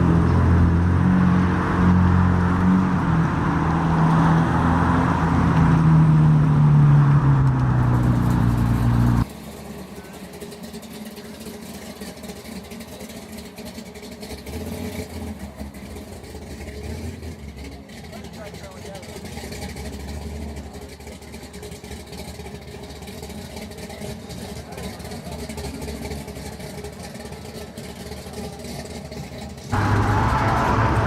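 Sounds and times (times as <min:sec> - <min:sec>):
car engine running: 0:00.0 - 0:31.0
outdoor background sound: 0:00.0 - 0:31.0.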